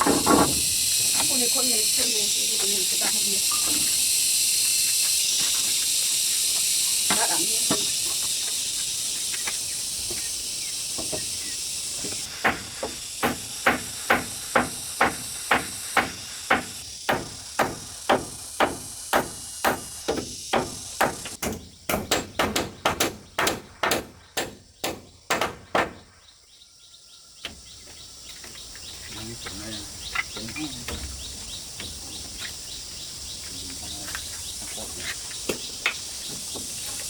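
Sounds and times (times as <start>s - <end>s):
sharp hammering blows: 0.0s - 0.8s, 12.2s - 26.1s
high hiss: 0.0s - 21.4s.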